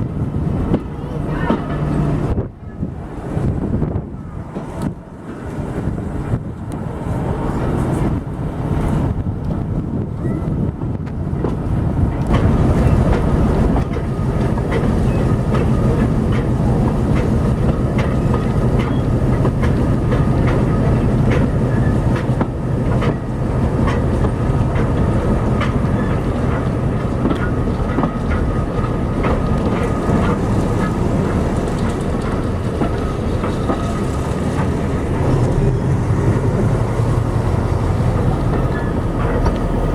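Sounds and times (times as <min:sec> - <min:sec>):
train rumbling along track: 0:00.0 - 0:39.9
wheels clicking over rail joints: 0:11.0 - 0:39.9.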